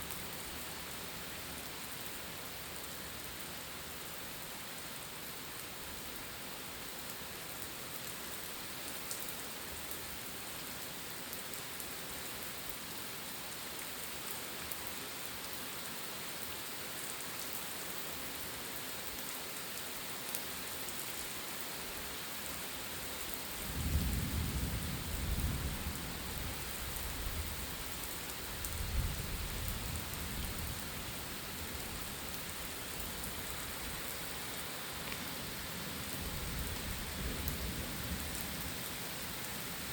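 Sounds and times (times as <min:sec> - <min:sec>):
steady rain falling: 0:00.0 - 0:39.9
low roll of thunder: 0:23.7 - 0:27.6.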